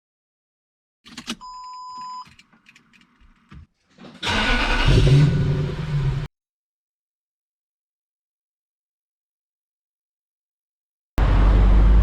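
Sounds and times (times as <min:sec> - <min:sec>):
car engine starting and revving: 0:04.1 - 0:06.3.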